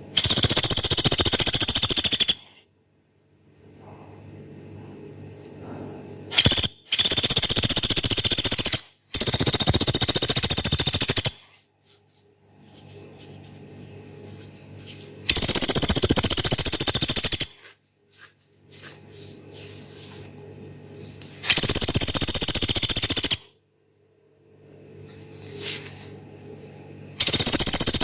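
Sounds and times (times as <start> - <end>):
woodpecker rattling calls: 0.2 - 2.5, 6.4 - 11.4, 15.3 - 17.6, 21.5 - 23.4, 27.2 - 28.0.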